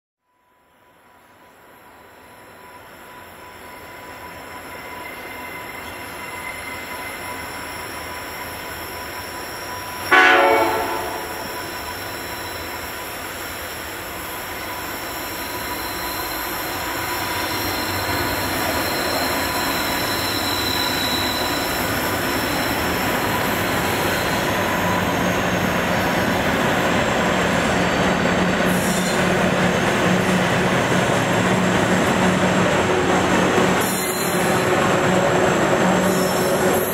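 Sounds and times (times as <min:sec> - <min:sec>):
diesel train rumble: 0:09.9 - 0:12.4
train horn blast: 0:10.1 - 0:11.7.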